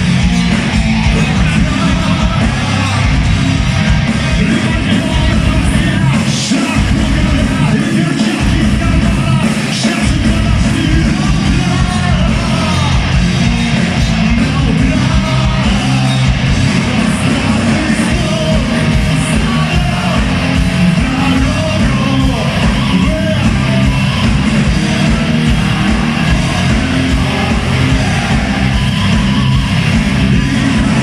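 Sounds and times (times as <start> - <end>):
bass guitar: 0.0 - 31.0
distorted guitars: 0.0 - 31.0
pounding drums: 0.0 - 31.0
person singing and shouting: 0.9 - 3.1, 4.3 - 13.2, 14.0 - 31.0.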